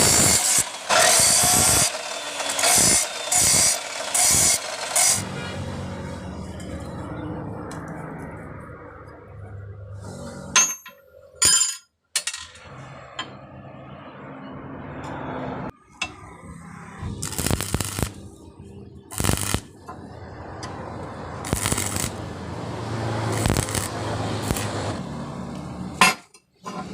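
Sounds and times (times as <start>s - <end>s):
harsh noisy bursts: 17.0s - 18.2s, 19.1s - 19.7s, 21.4s - 25.0s.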